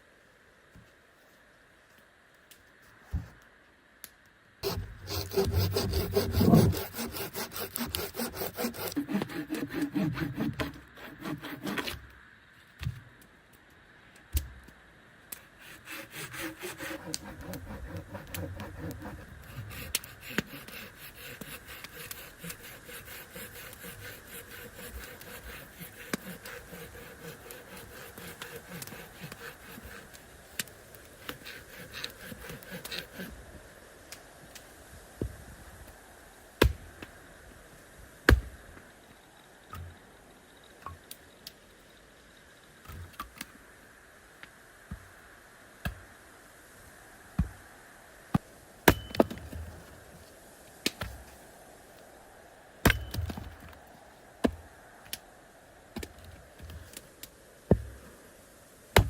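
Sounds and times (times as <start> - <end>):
wood rubbing and scraping: 4.6 - 12.0, 15.6 - 33.3.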